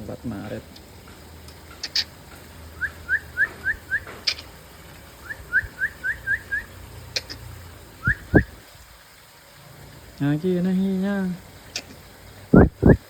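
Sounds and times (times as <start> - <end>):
bird chirping: 2.8 - 4.5, 5.2 - 7.4, 8.0 - 8.6.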